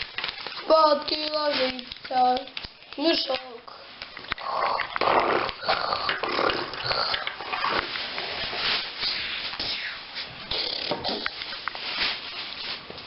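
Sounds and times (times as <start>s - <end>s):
child snoring and snorting: 4.4s - 7.4s, 10.5s - 11.3s.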